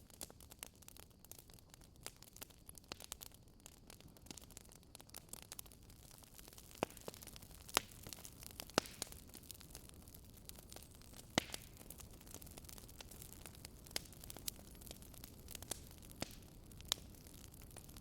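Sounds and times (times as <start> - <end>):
wood fire crackling: 0.0 - 18.0
loud fire pops: 4.2 - 18.0.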